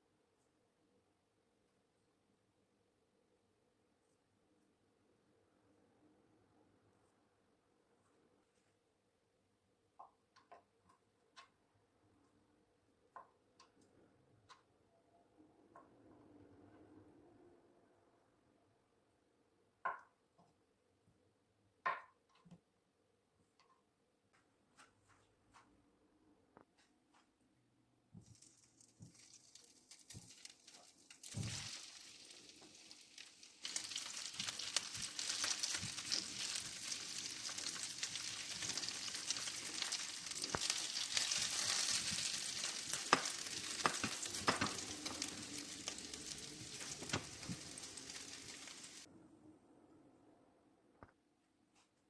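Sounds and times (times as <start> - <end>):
food sizzling in a pan: 28.3 - 49.1
stirring clicks and scrapes: 33.2 - 49.1.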